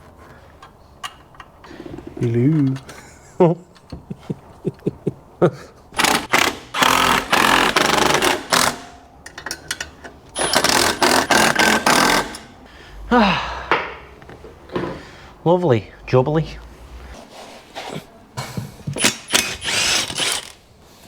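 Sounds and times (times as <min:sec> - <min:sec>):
impact wrench hammering: 0:06.0 - 0:09.5, 0:10.4 - 0:12.5.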